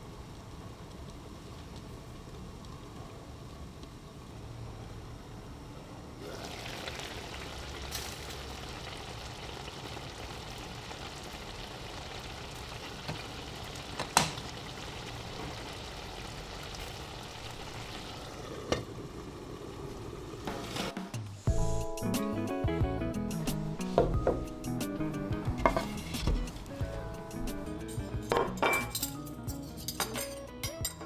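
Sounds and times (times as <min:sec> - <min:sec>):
food sizzling in a pan: 0:06.2 - 0:20.9, 0:25.1 - 0:26.8.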